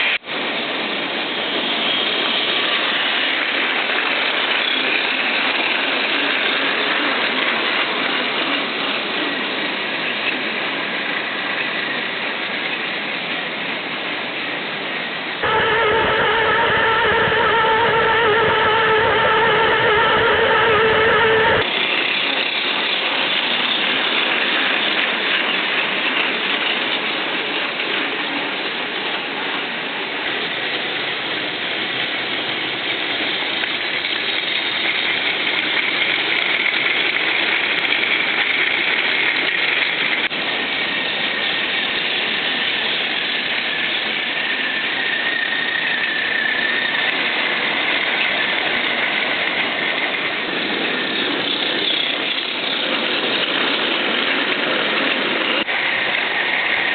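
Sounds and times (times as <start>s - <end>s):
toy train motor whine: 15.4s - 27.0s, 32.6s - 56.9s
toy train wheels rattling: 18.1s - 28.1s.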